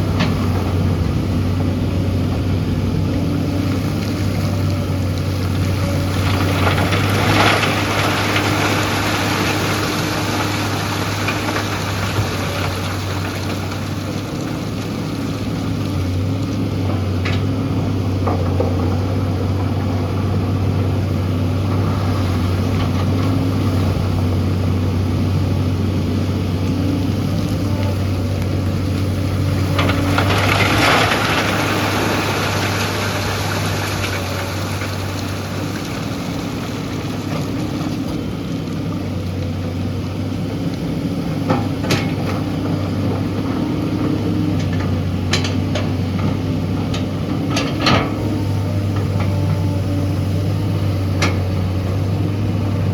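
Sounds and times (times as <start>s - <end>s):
excavator diesel engine humming: 0.0s - 52.9s
gravel pouring from bucket: 4.0s - 15.5s, 29.0s - 38.0s.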